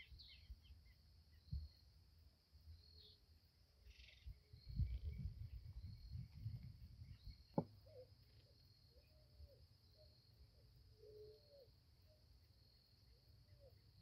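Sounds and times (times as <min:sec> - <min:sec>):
bird calls: 0:00.0 - 0:01.8, 0:03.8 - 0:06.1, 0:07.0 - 0:12.3, 0:13.0 - 0:14.0
insects chirring: 0:00.0 - 0:14.0.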